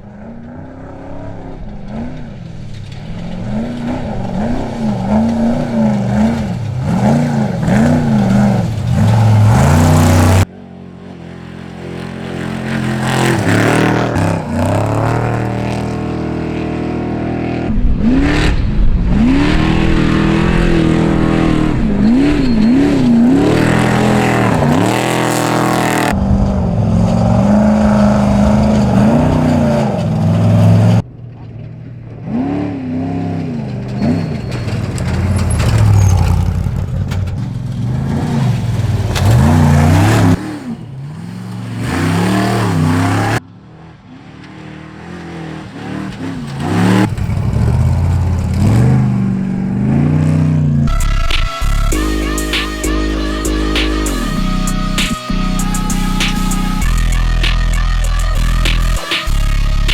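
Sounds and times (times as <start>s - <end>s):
race truck engines revving: 0.0s - 59.9s.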